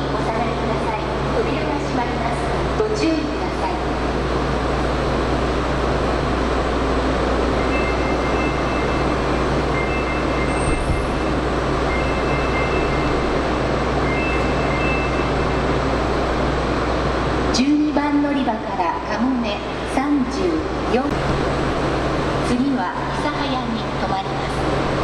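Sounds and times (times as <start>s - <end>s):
train rumble and hum: 0.0s - 25.0s
two-note electronic beep: 7.6s - 13.3s, 14.0s - 15.6s.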